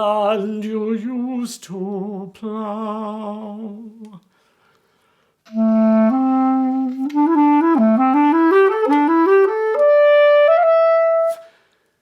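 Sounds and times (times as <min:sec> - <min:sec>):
solo clarinet playing: 0:05.5 - 0:11.6.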